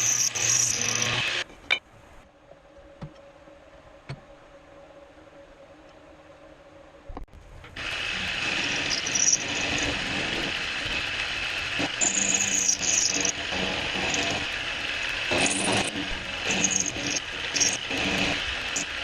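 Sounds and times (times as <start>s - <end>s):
high squeal: 0.0s - 1.4s, 8.5s - 10.0s, 12.0s - 13.4s
portable band saw running: 0.0s - 1.4s, 7.8s - 19.0s.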